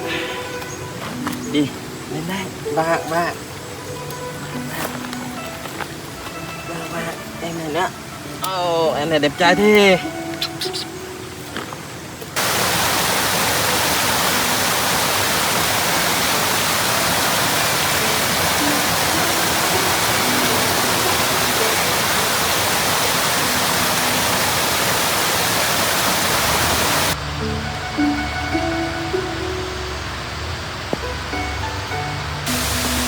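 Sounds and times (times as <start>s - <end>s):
waterfall rushing: 10.1s - 33.0s.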